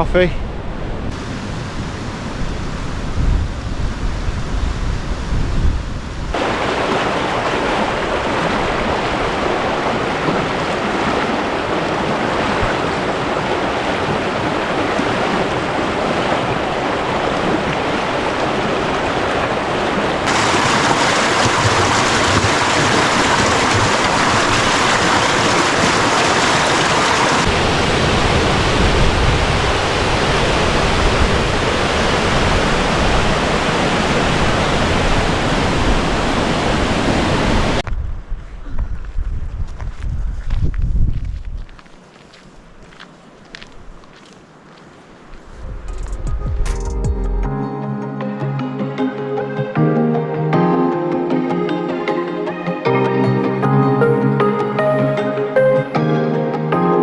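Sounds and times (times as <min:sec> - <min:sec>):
wind buffeting microphone: 0:00.0 - 0:06.4, 0:07.5 - 0:41.9, 0:45.3 - 0:46.8
waterfall rushing: 0:06.4 - 0:37.8.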